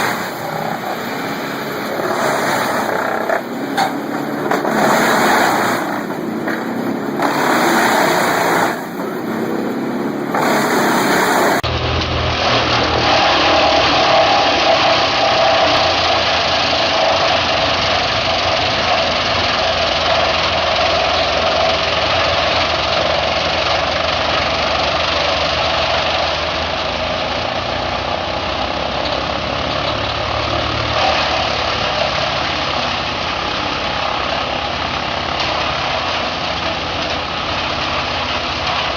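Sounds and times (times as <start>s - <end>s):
steady high hum: 0.0s - 16.6s
deep engine note: 0.0s - 24.9s
wood chipper engine running: 0.0s - 38.9s.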